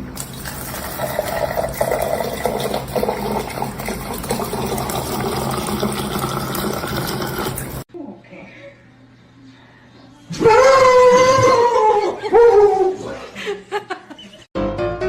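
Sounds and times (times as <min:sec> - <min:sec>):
running water: 0:00.0 - 0:07.9.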